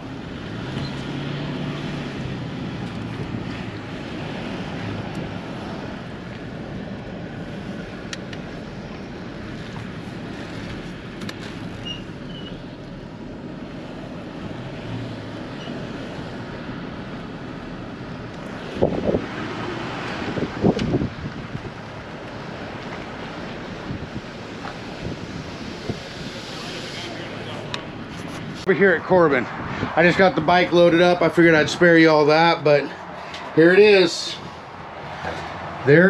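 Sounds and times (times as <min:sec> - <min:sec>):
road noise from moving vehicle: 0:00.0 - 0:36.0
wind buffeting microphone: 0:15.9 - 0:26.8, 0:27.5 - 0:31.9.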